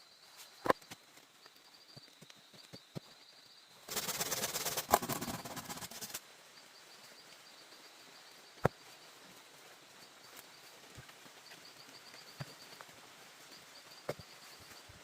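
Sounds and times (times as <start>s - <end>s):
faint insect chirping: 0.0s - 15.0s
rustling and crackling: 3.9s - 6.2s.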